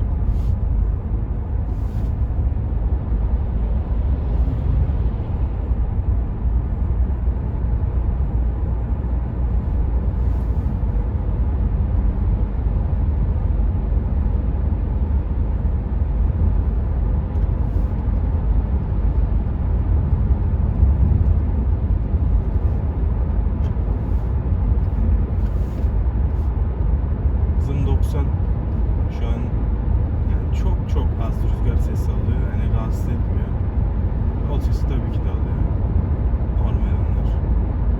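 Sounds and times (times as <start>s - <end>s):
wind noise: 0.0s - 27.6s
car engine running: 0.0s - 37.9s
road and tyre rumble in car: 0.0s - 37.9s.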